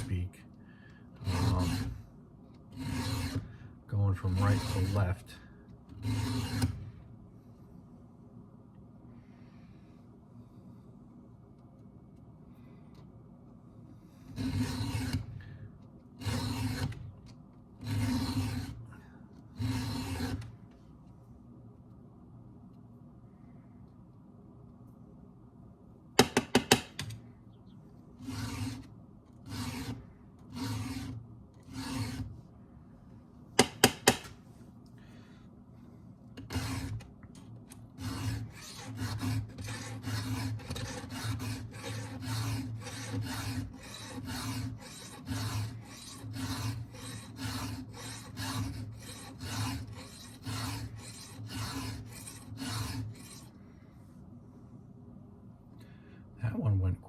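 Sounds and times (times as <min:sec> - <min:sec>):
file rasping on chainsaw chain: 0:01.2 - 0:02.0, 0:02.8 - 0:05.4, 0:06.0 - 0:06.8, 0:14.4 - 0:15.3, 0:16.2 - 0:17.0, 0:17.8 - 0:18.8, 0:19.6 - 0:20.4, 0:28.2 - 0:28.8, 0:29.5 - 0:32.3, 0:36.4 - 0:37.0, 0:38.0 - 0:53.5.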